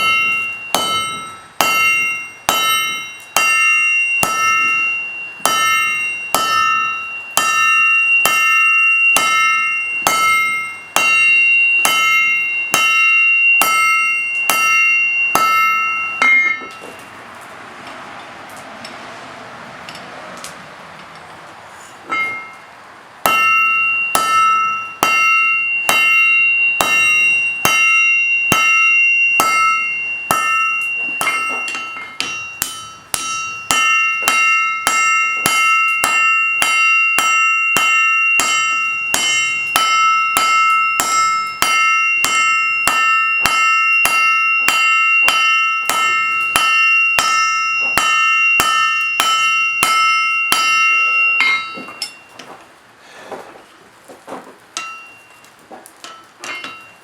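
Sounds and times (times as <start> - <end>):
anvil ringing: 0.0 - 17.2, 22.0 - 52.6, 54.8 - 57.0
hammer striking steel on anvil: 0.0 - 17.2, 22.0 - 52.6, 54.8 - 57.0.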